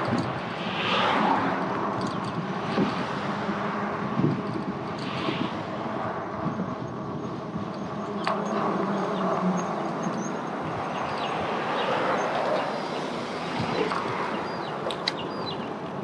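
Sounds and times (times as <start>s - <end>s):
rushing air: 0.0s - 7.7s
vehicles passing: 0.0s - 16.0s.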